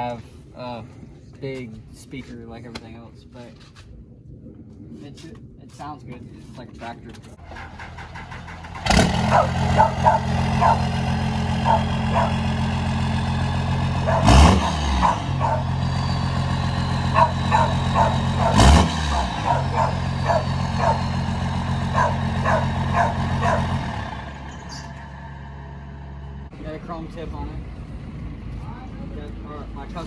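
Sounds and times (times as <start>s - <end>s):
diesel engine idling and revving: 7.4s - 30.0s.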